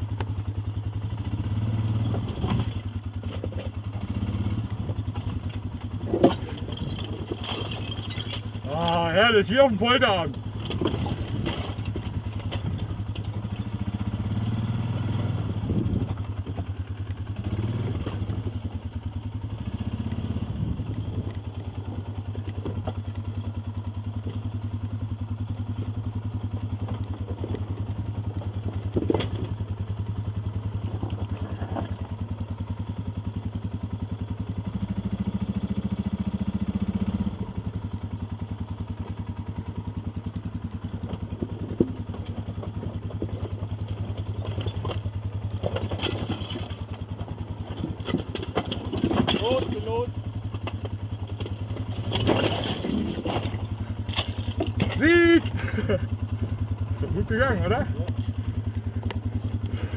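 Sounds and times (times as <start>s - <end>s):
atv engine running: 0.0s - 59.9s
clattering and knocks: 6.0s - 8.6s, 47.7s - 49.8s, 50.6s - 55.0s.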